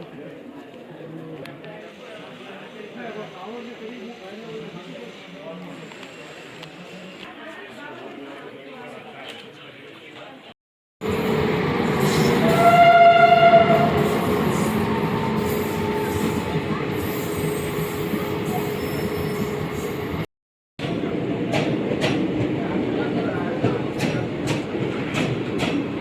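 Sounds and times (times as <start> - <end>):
train rumbling by: 11.0 - 20.2, 20.8 - 26.0
train horn: 12.2 - 16.4.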